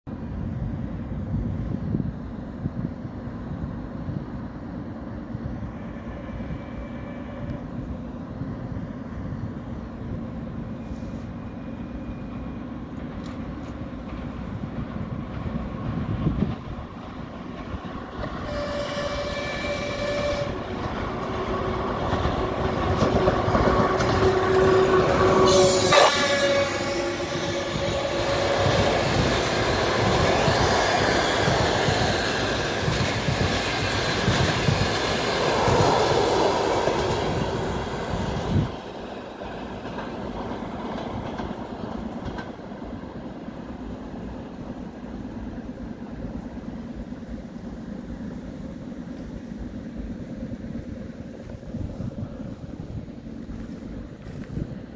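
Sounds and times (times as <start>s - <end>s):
train passing: 0.1s - 54.9s
locomotive horn: 5.7s - 7.8s, 18.3s - 21.8s, 23.0s - 29.3s
train wheels clacking over rail joints: 13.2s - 42.7s.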